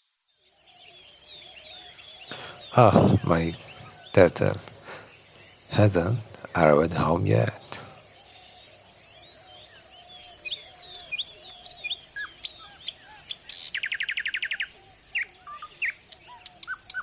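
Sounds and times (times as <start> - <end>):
birds chirping: 0.0 - 17.0
high insect drone: 0.2 - 17.0.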